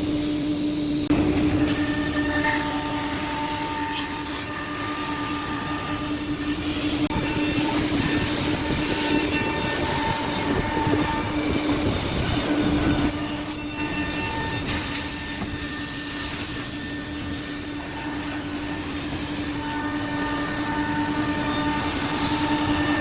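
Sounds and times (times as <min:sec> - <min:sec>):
woodworking machine motor whine: 0:00.2 - 0:23.0
machining hiss: 0:07.2 - 0:23.0.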